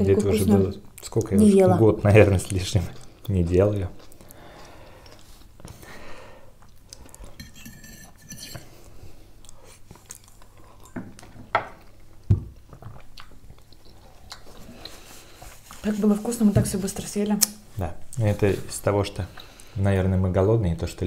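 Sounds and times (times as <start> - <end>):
chewing and mouth sounds: 2.4 - 5.8, 9.3 - 15.6
fork scraping on ceramic plate: 7.4 - 8.7.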